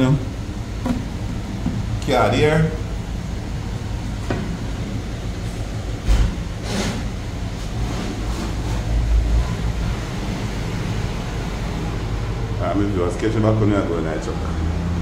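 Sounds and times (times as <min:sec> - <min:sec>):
truck engine rumbling: 0:00.0 - 0:15.0
thump: 0:06.0 - 0:06.4.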